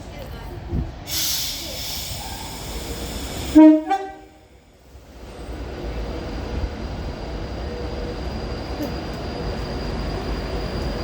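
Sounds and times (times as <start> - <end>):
train rumbling on rails: 0.0 - 11.0
train horn: 3.5 - 4.4.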